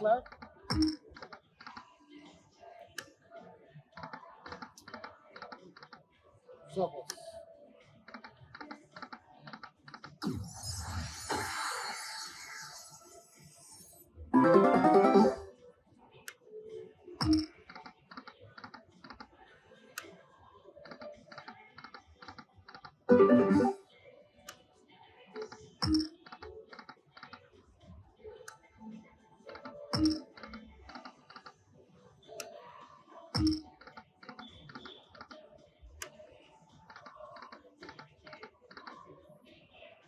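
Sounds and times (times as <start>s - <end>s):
slot machine thump: 14.4s - 15.4s, 23.1s - 23.8s
slot machine jingle: 14.4s - 15.5s, 23.1s - 23.8s
slot machine reel clicks: 14.4s - 15.5s, 23.1s - 23.8s.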